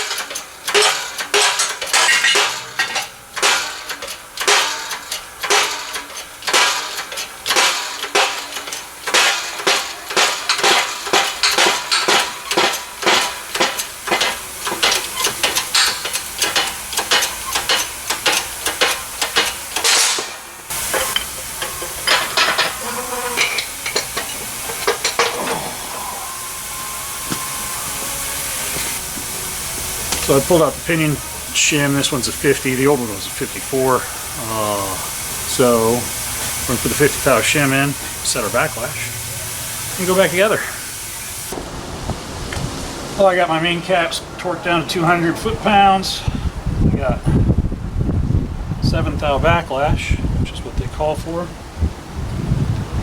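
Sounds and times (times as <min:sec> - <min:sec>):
hammer striking metal: 0:00.0 - 0:41.2
steady hiss: 0:00.0 - 0:48.1.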